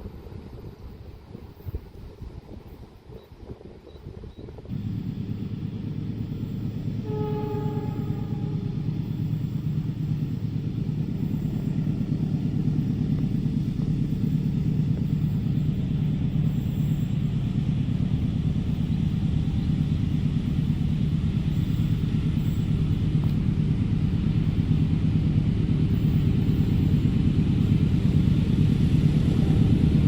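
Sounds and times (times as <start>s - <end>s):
train rumbling past: 0.0s - 30.0s
train horn blast: 6.9s - 9.2s.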